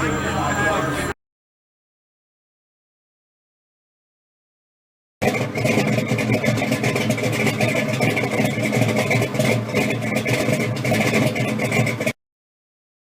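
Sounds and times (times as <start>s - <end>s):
hot rod engine idling: 0.0s - 1.1s, 5.2s - 12.1s.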